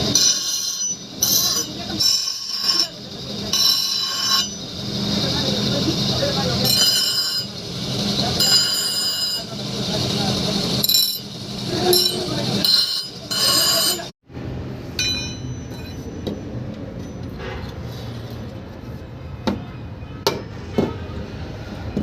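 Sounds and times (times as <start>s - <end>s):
hammer clanging on anvil: 15.0s - 17.6s.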